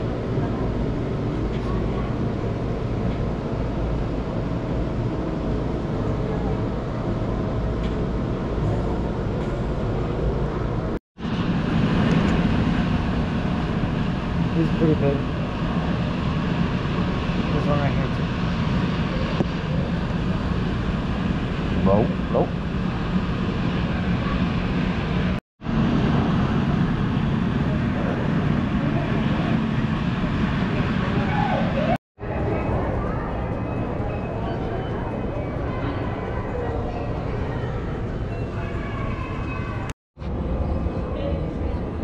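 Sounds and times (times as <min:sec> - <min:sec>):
low hum of indoor gallery: 0:00.0 - 0:11.0, 0:31.2 - 0:42.0
low rumbling room noise: 0:00.0 - 0:42.0.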